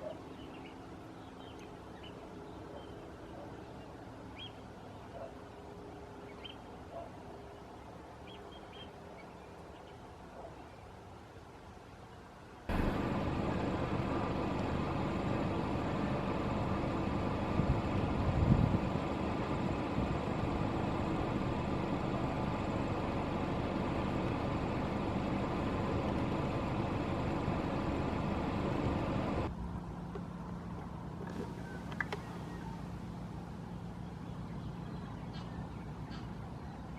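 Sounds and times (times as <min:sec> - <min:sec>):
faint low hum: 0:00.0 - 0:36.9
steady rushing noise: 0:12.7 - 0:23.0.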